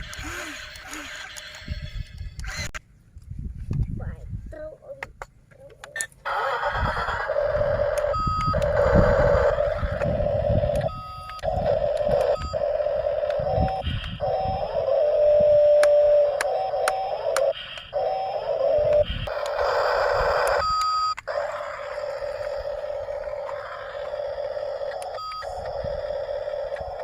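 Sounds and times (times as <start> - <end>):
machinery whine: 6.3 - 27.0.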